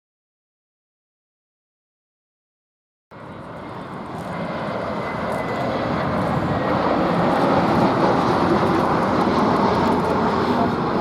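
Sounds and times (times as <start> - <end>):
jet engines rushing: 3.2 - 11.0.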